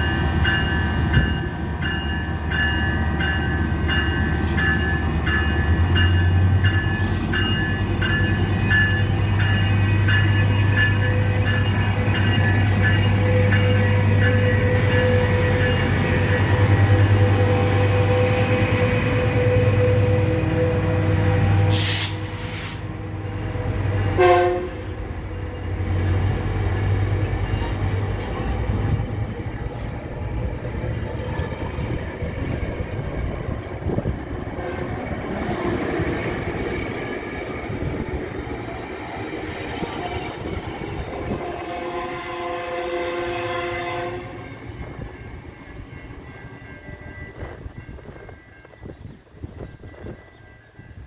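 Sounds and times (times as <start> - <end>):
train rumbling: 0.0 - 51.0
train horn: 13.0 - 25.0, 41.1 - 45.4.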